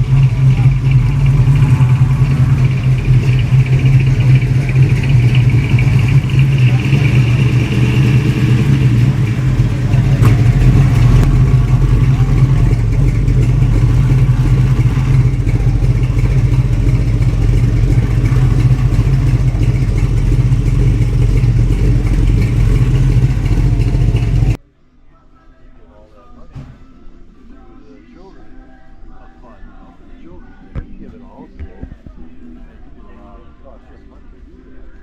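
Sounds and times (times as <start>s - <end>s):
car engine fast idle: 0.0s - 24.6s.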